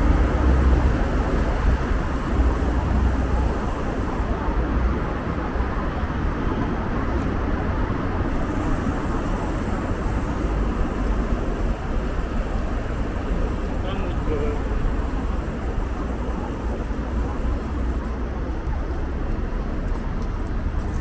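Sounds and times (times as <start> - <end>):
city street traffic: 0.0 - 21.0.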